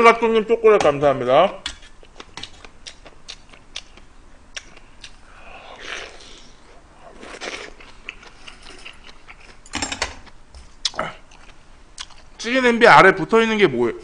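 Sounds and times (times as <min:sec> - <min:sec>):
man chewing food: 0:01.8 - 0:12.4.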